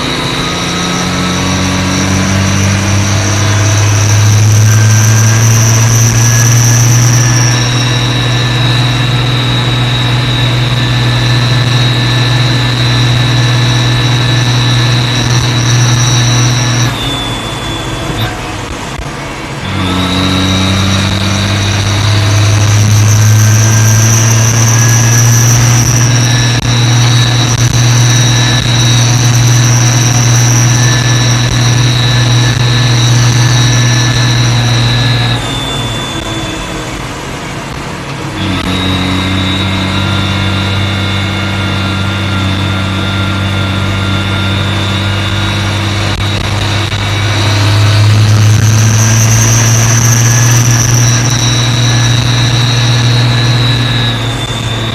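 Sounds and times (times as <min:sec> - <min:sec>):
tractor engine running: 0:00.0 - 0:54.9
turbocharger whistle: 0:00.0 - 0:54.9.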